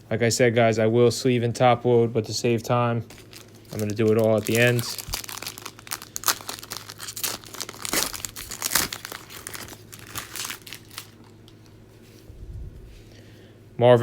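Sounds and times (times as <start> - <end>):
wrapper tearing and crinkling: 3.1 - 11.4.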